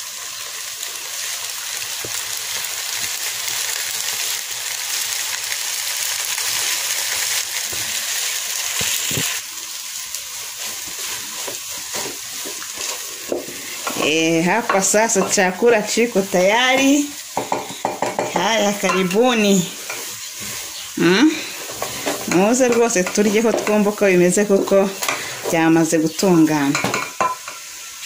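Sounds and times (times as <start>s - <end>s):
noodles sizzling: 0.0s - 28.0s
wooden spoon stirring: 10.3s - 25.9s.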